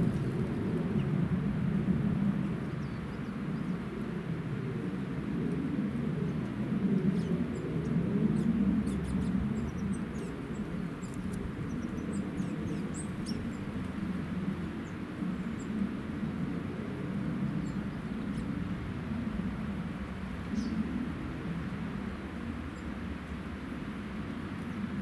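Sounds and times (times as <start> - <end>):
steady low rumble: 0.0 - 3.6
small birds chirping: 7.1 - 15.7, 20.4 - 20.9.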